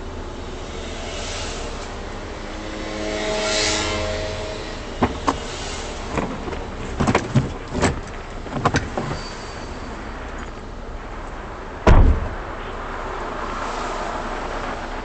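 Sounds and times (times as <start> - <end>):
low vehicle rumble: 0.0 - 15.0
sharp clicks and knocks: 6.1 - 9.2
loud heavy thump: 11.8 - 12.5.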